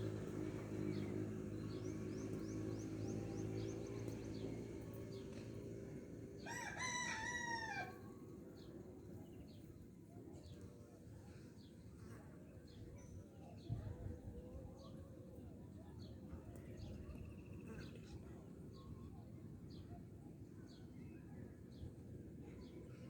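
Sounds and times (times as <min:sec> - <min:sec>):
rooster crowing: 0:06.4 - 0:08.0.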